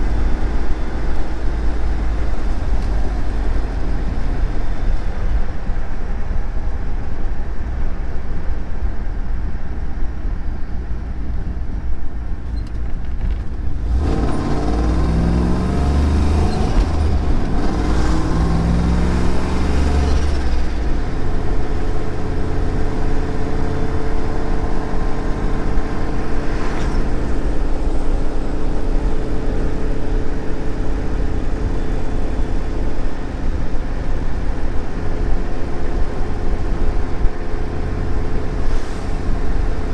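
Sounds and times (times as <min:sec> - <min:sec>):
car engine revving: 0:13.6 - 0:39.9.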